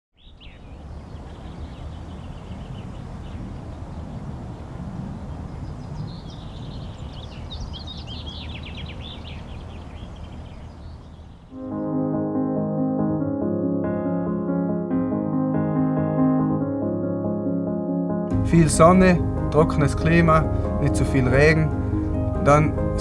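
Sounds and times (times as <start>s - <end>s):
rapid bird song: 0.2s - 11.6s
small birds chirping: 0.2s - 11.6s.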